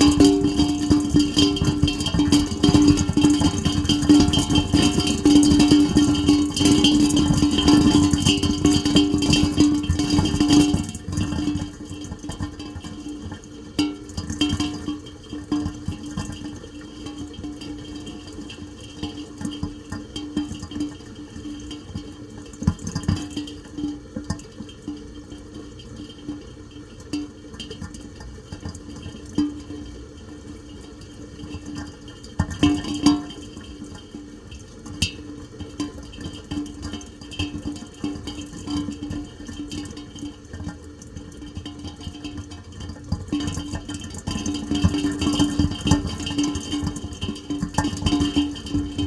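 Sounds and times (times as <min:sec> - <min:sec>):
drips and splashes: 0:00.0 - 0:49.0.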